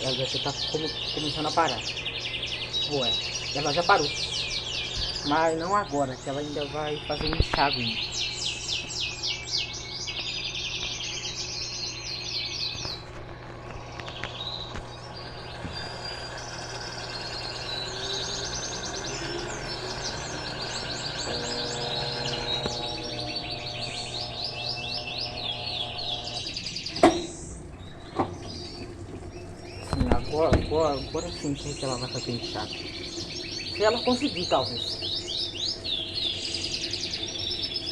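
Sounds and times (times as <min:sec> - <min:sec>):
songbirds chirping trills: 0:00.0 - 0:37.9
steady low hum: 0:00.0 - 0:37.9.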